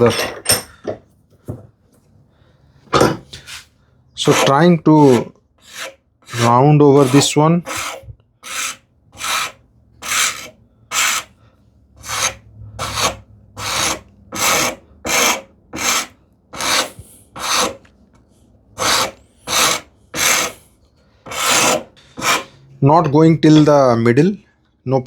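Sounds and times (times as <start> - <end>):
hand rasp scraping wood: 4.2 - 11.4, 12.0 - 17.9, 18.8 - 22.6.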